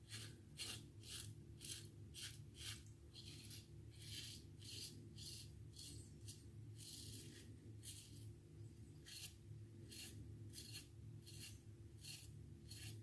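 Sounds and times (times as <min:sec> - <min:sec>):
low steady hum: 0:00.1 - 0:13.0
razor scraping stubble: 0:09.0 - 0:13.0.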